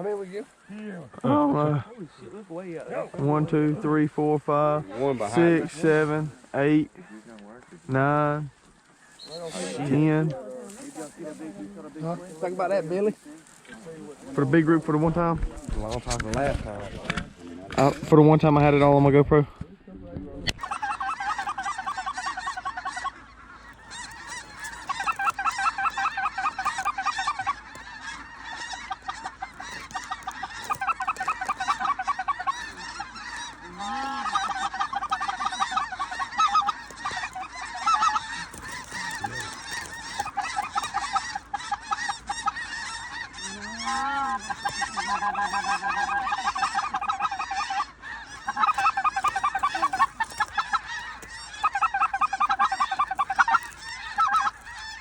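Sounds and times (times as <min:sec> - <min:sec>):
geese honking: 0:00.0 - 0:55.0.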